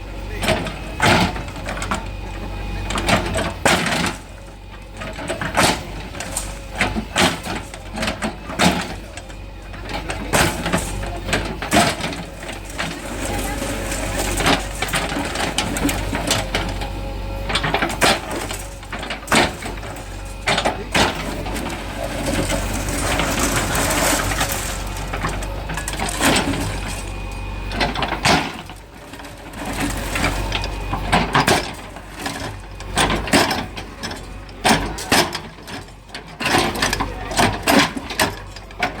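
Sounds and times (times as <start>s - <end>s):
diesel engine running: 0.0s - 39.0s
masonry breaking and falling: 17.5s - 36.0s.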